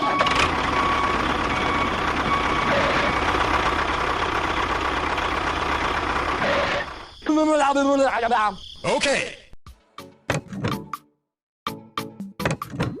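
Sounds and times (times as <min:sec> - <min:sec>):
small tractor engine chugging: 0:00.0 - 0:07.1.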